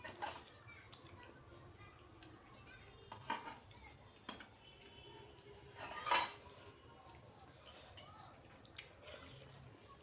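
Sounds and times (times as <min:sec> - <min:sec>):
plate and utensils clinking: 0:00.0 - 0:00.5, 0:03.1 - 0:03.7, 0:05.7 - 0:06.6.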